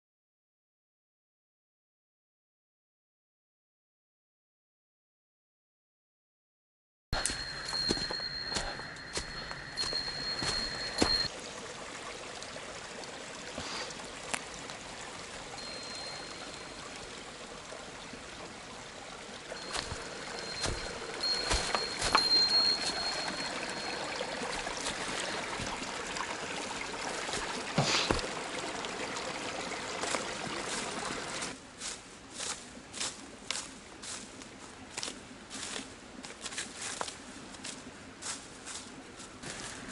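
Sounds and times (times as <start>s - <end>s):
thin high tone: 7.2s - 11.3s, 15.5s - 17.2s, 19.5s - 26.2s
small stream running: 7.2s - 39.9s.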